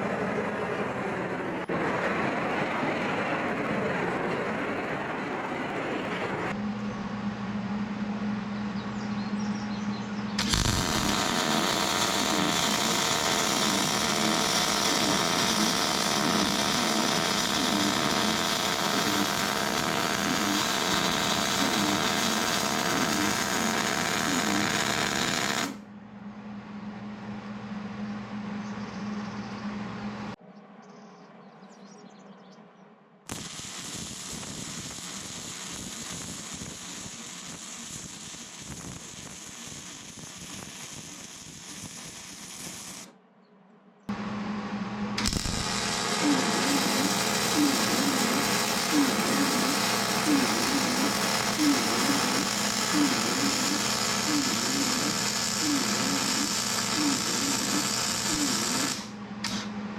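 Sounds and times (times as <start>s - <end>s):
steady low hum: 0.0s - 30.4s, 44.0s - 59.9s
welder arc crackling: 10.4s - 25.8s, 33.3s - 43.1s, 45.2s - 59.7s.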